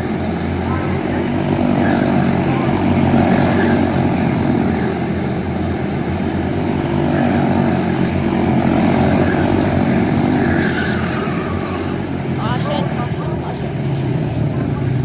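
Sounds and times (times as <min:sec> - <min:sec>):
small race car engine running: 0:00.0 - 0:15.0.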